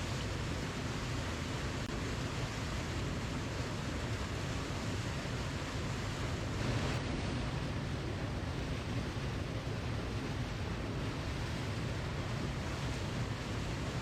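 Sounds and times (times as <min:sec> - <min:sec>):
waterfall rushing: 0:02.9 - 0:14.0.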